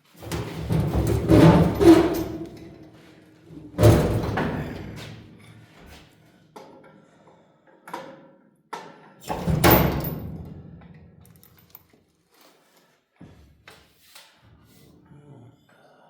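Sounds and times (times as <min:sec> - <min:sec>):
metal clanks and knocks: 0:00.2 - 0:02.9.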